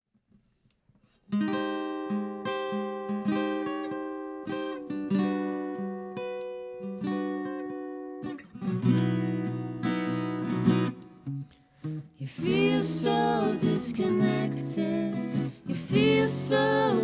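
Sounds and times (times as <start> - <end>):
guitar picked notes and chords: 1.4 - 17.0
person singing: 12.2 - 17.0.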